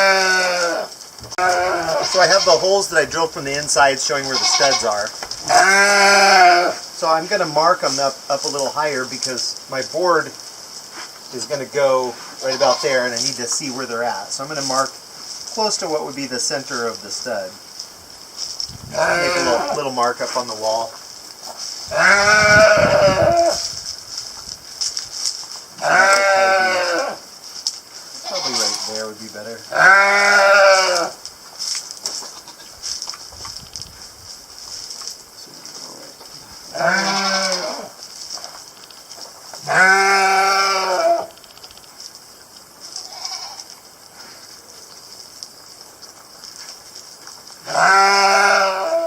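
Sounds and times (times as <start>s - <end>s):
sheep bleating: 0.0s - 2.7s, 4.2s - 6.8s, 18.9s - 19.8s, 21.9s - 23.6s, 25.8s - 27.2s, 28.2s - 29.1s, 29.7s - 31.2s, 36.7s - 37.9s, 39.6s - 41.3s, 43.1s - 43.6s, 47.6s - 49.0s
quiet steady hiss: 0.0s - 49.0s.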